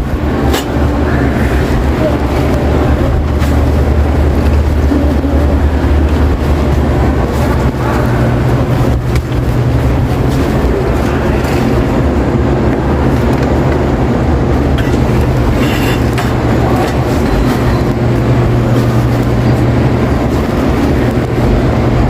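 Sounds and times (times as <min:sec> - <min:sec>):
indistinct background noise: 0:00.0 - 0:22.0
low hum: 0:00.0 - 0:22.0.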